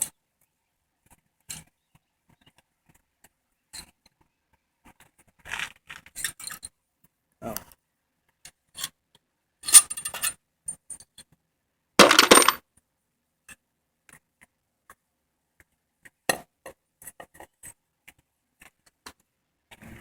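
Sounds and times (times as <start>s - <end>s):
metal engine parts clinking: 9.6s - 11.0s, 12.0s - 12.6s.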